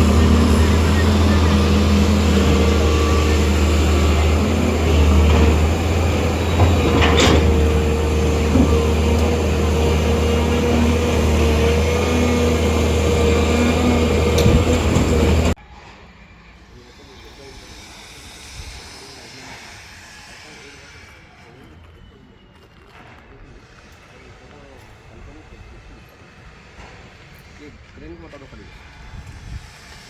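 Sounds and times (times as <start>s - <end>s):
heavy machine engine droning: 0.0s - 15.9s.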